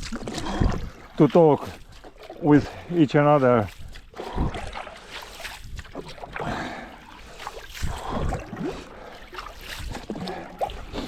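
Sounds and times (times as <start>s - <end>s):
wind rumbling on microphone: 0.0s - 1.3s, 3.7s - 6.7s, 7.7s - 8.8s
paddle splashing in water: 0.0s - 11.0s.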